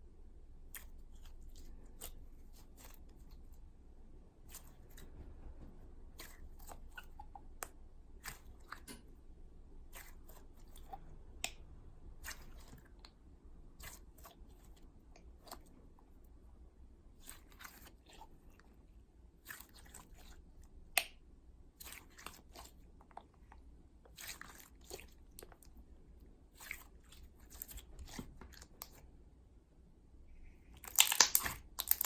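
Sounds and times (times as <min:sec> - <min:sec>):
slime clicking and popping: 0:30.8 - 0:32.0.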